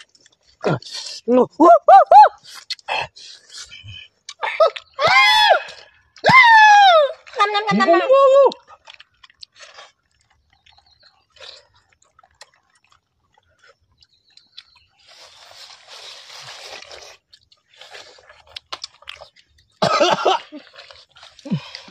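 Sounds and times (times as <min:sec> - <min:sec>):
chewing watermelon: 0:00.0 - 0:01.2, 0:02.4 - 0:05.0, 0:07.1 - 0:21.9
noisy slurp: 0:08.5 - 0:19.4.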